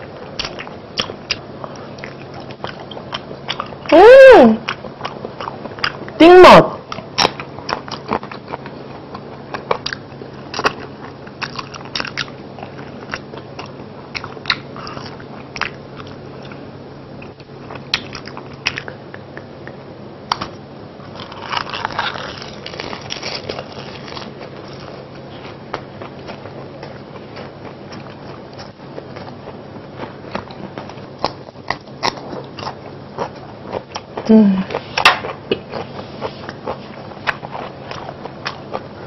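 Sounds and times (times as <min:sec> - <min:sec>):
crunching fried chicken: 0:06.8 - 0:19.0, 0:20.3 - 0:39.0.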